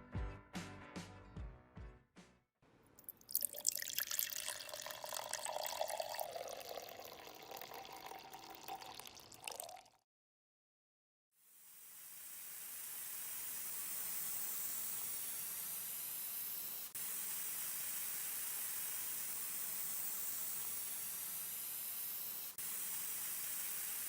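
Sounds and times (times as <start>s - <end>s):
spray gun hissing: 11.8s - 24.0s.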